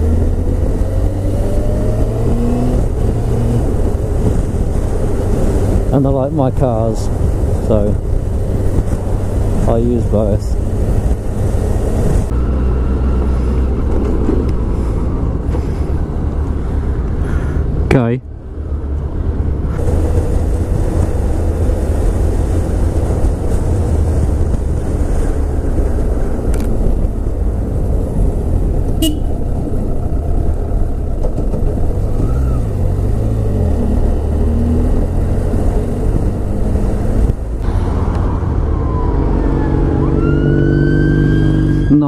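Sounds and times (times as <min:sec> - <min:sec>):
wind rush: 0:00.0 - 0:12.4, 0:18.5 - 0:40.2
motorcycle engine: 0:19.7 - 0:42.0
emergency siren: 0:38.4 - 0:42.0.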